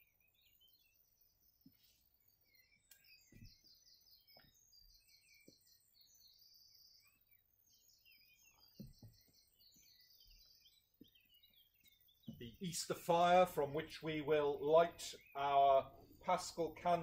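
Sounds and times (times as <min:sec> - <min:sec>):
songbirds singing: 0:00.0 - 0:17.0
soft low thumps: 0:08.6 - 0:09.5.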